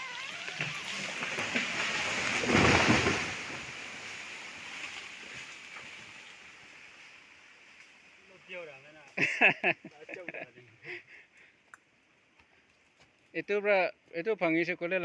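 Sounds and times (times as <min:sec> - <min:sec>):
tree crashing down: 0:00.0 - 0:07.2
long rustle of branches: 0:00.0 - 0:13.4.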